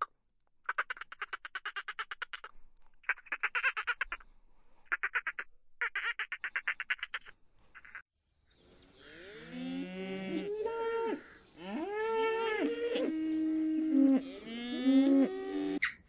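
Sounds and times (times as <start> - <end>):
cattle mooing: 9.0 - 15.8.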